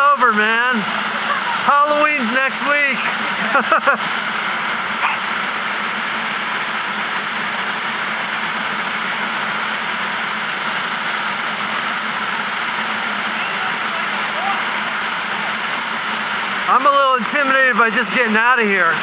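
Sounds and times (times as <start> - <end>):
waterfall rushing: 0.0 - 5.4.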